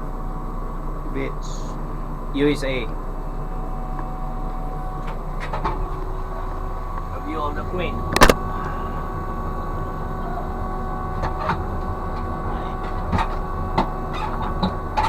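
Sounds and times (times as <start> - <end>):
machinery hum: 0.0 - 15.0
steady whining tones: 0.0 - 15.0.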